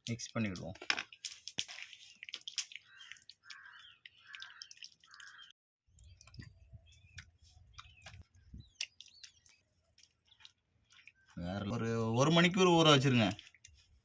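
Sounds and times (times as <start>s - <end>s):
hands squelching marinade: 0.0s - 14.0s
crow cawing: 2.9s - 5.5s.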